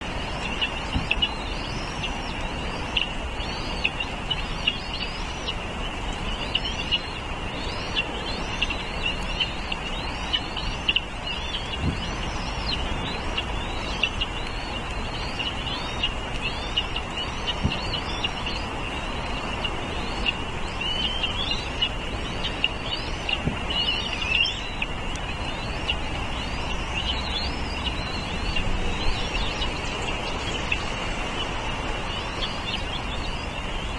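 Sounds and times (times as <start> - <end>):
small birds chirping: 0.0 - 33.9
steady low rumble: 0.0 - 33.9.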